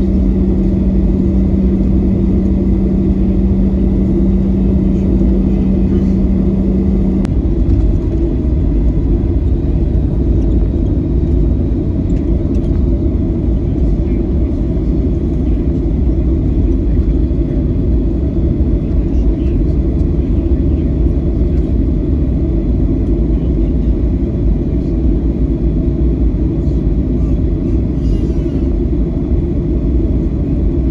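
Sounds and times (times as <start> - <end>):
steady hum: 0.0 - 22.3
airplane cabin rumble: 0.0 - 30.9.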